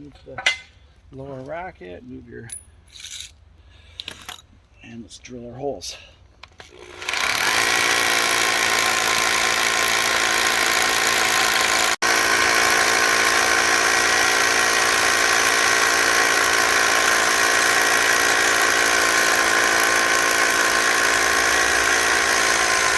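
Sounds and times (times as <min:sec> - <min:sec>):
power drill drilling: 0:06.6 - 0:22.9.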